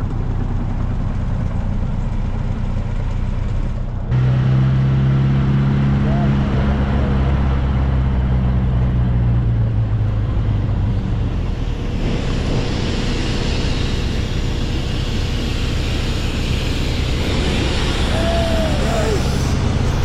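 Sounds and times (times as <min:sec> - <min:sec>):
car engine drone: 0:00.0 - 0:20.0
rushing hiss: 0:13.3 - 0:20.0.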